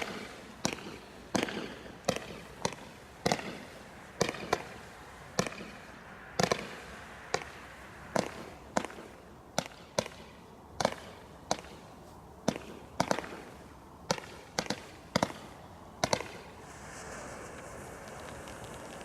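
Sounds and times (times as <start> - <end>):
firework bangs: 0.0 - 11.8, 12.4 - 19.0
wind noise on microphone: 16.5 - 19.0.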